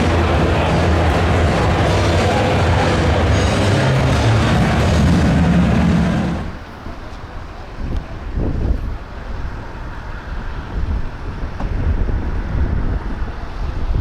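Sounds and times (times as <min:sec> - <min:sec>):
loud engine-like rumble: 0:00.0 - 0:06.9
wind noise on microphone: 0:07.8 - 0:14.0.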